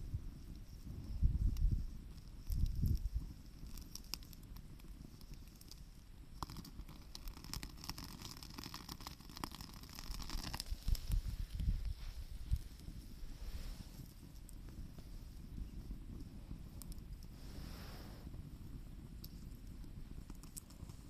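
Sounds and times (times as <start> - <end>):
wind gusts on microphone: 0.0 - 3.3, 10.6 - 14.2
campfire crackling and popping: 0.0 - 21.0.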